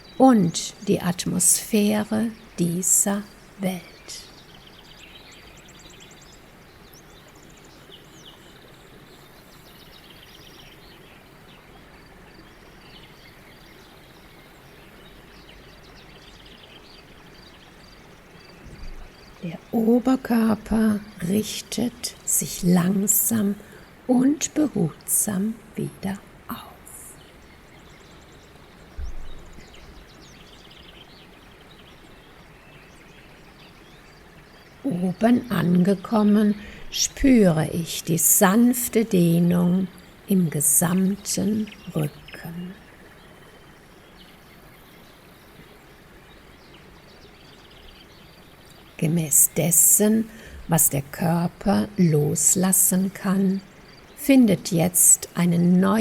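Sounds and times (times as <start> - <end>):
low background hiss: 0.0 - 56.0
small birds chirping and twittering: 0.0 - 56.0
low thump: 29.0 - 29.4.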